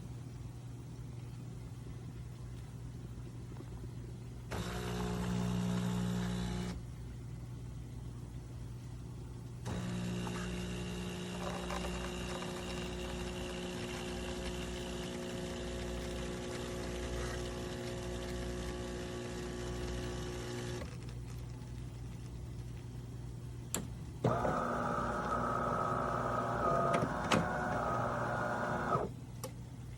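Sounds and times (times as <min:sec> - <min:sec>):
espresso machine pump hum: 0:04.5 - 0:06.8, 0:09.7 - 0:21.1, 0:24.3 - 0:29.1
machine whir: 0:04.5 - 0:06.8, 0:09.6 - 0:21.0, 0:24.2 - 0:29.1.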